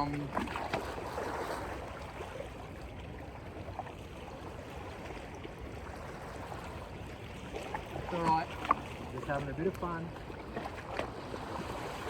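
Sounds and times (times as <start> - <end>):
sea wash: 0.0 - 12.0.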